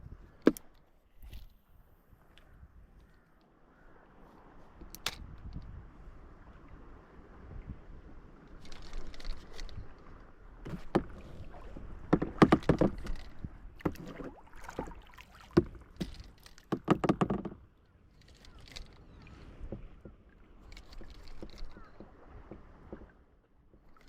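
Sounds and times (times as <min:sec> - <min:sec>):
knocks inside boat hull: 0:12.1 - 0:13.2, 0:15.6 - 0:17.6.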